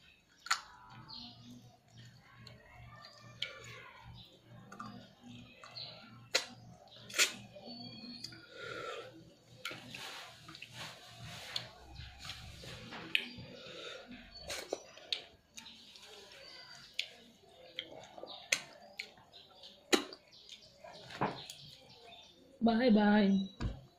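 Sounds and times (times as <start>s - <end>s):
chewing with wet lip smacks: 16.7s - 19.3s.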